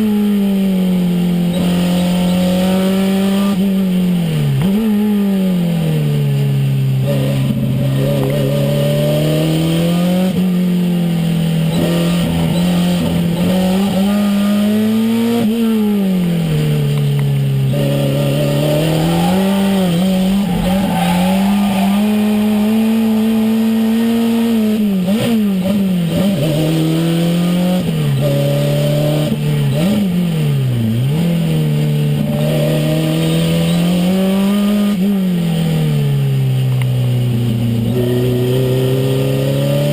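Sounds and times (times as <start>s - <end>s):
car engine accelerating: 5.7s - 35.8s.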